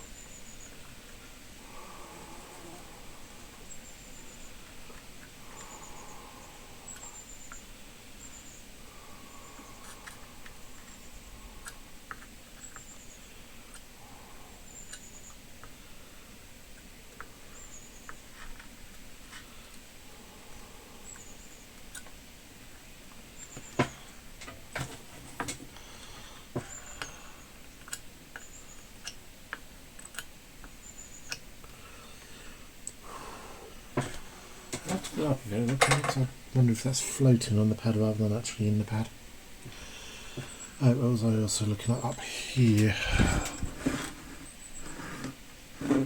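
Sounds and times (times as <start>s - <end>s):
faint high-pitched whine: 0.0s - 46.0s
soft hiss: 31.5s - 46.0s.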